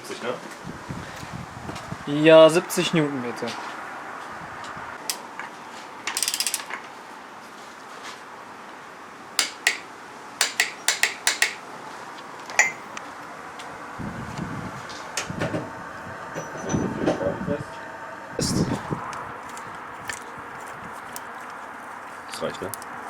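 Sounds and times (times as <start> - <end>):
ratchet wrench clicking: 6.1 - 6.7.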